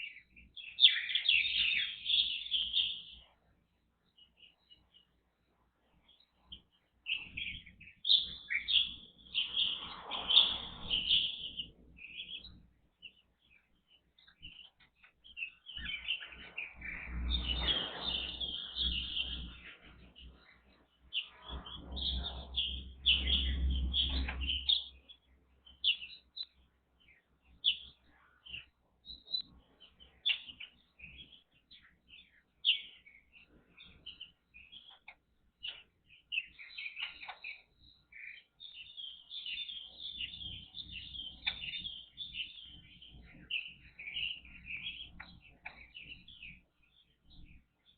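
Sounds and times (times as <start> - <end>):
birds chirping: 0.0 - 47.9
low rumbling noise: 16.6 - 20.4, 21.4 - 26.0.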